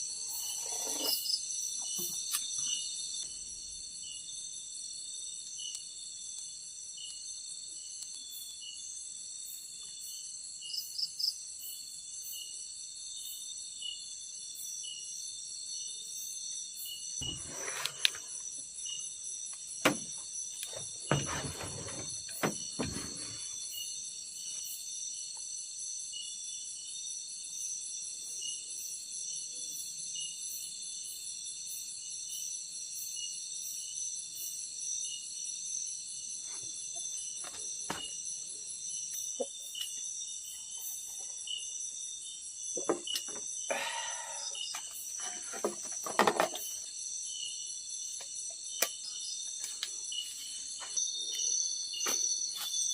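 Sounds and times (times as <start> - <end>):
night insects chirping: 0.0 - 52.9
knocks and rustles: 19.8 - 23.5, 45.2 - 46.8.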